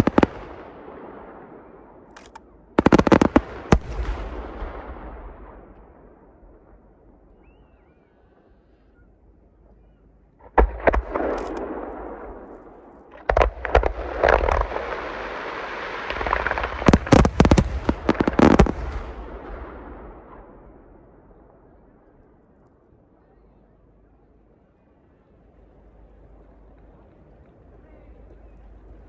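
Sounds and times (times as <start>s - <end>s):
fireworks bursting: 0.0s - 1.2s, 2.2s - 6.7s, 10.4s - 20.5s.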